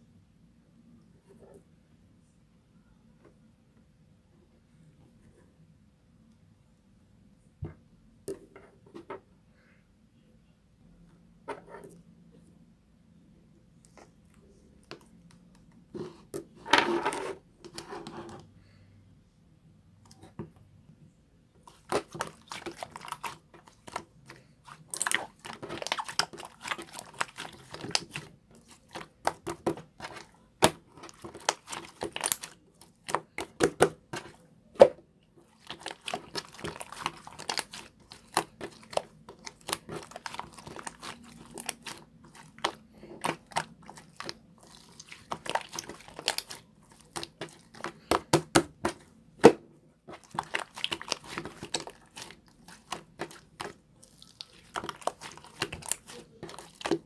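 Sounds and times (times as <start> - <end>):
slime popping and crackling: 21.7 - 34.3, 35.5 - 49.0, 50.1 - 57.0.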